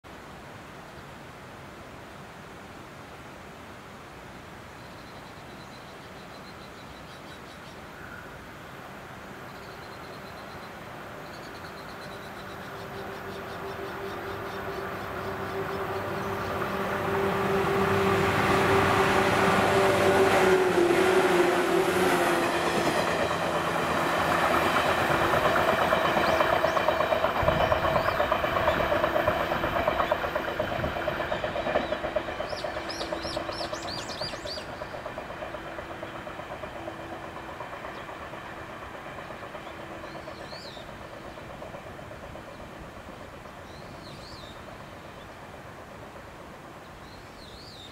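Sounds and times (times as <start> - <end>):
train hum: 1.7 - 47.9
train wheels clicking on rail joints: 11.3 - 47.8.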